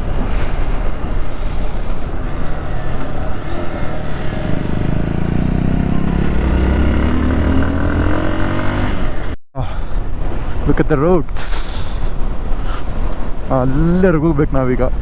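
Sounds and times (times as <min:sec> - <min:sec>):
motorcycle engine running: 0:01.4 - 0:09.4.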